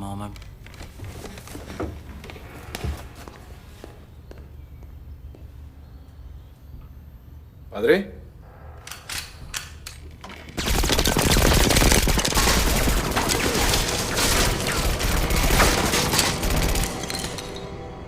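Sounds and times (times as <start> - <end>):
rapid gunfire: 10.6 - 17.1.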